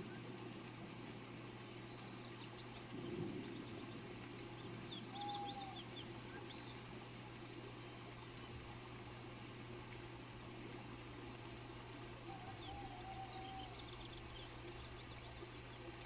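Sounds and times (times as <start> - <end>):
rain hiss: 0.0 - 16.0
whistled bird note: 5.1 - 5.8.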